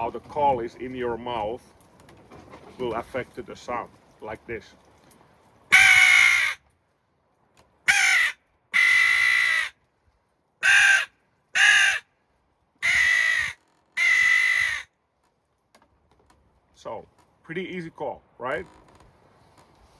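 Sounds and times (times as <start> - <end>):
crow call caws: 5.7 - 6.6, 7.9 - 9.8, 10.6 - 12.1, 12.8 - 15.0.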